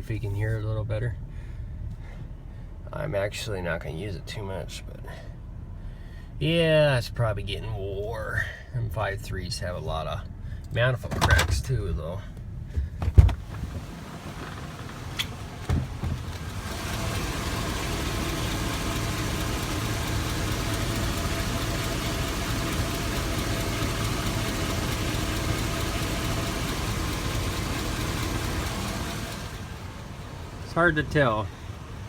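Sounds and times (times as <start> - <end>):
car engine idling with ticking: 11.8 - 32.0
thump: 12.8 - 13.6, 15.6 - 16.3.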